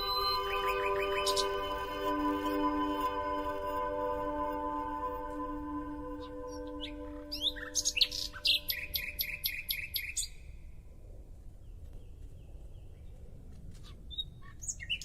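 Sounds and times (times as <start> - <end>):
nightingale singing: 0.0 - 10.8, 13.8 - 15.0.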